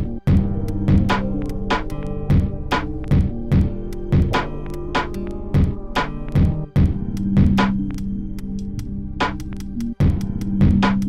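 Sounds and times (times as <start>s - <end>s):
drum machine hits: 0.0s - 7.8s, 10.0s - 11.0s
synth chords: 0.0s - 11.0s.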